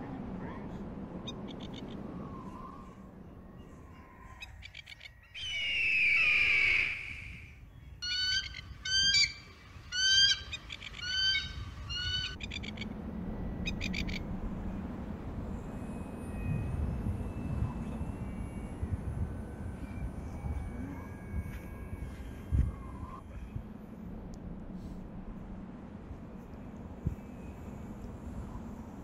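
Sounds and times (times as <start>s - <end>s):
low steady hum: 0.0s - 29.0s
bird descending scream: 1.6s - 12.8s.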